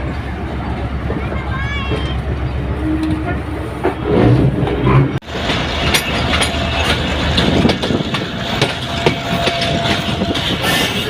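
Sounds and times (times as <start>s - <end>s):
train rumbling on rails: 0.0s - 11.0s
wheels clicking on track: 5.3s - 11.0s.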